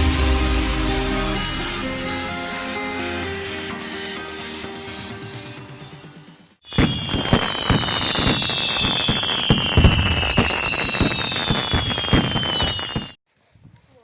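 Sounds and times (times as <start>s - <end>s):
fireworks crackling and popping: 6.7s - 13.2s
high falling whistle: 6.7s - 13.2s.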